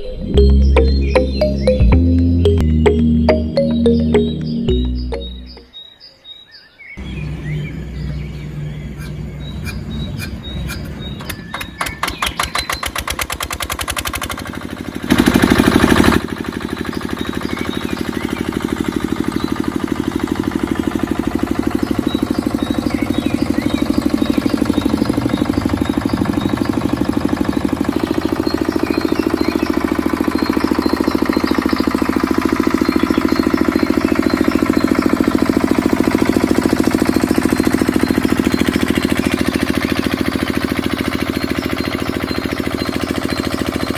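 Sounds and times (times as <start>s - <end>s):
diesel engine starting: 7.0s - 43.9s
diesel engine running: 14.6s - 43.9s.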